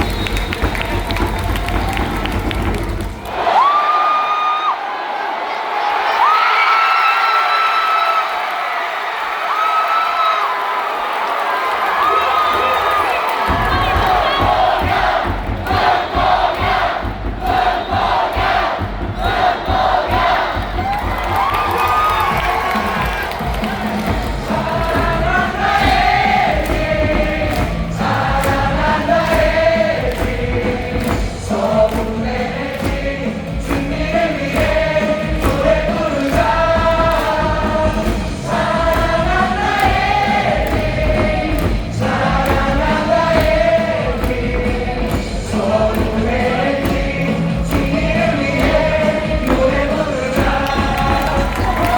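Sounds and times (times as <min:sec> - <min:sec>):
amplified music with beat: 0:13.5 - 0:51.9
crowd singing in unison: 0:13.5 - 0:51.9.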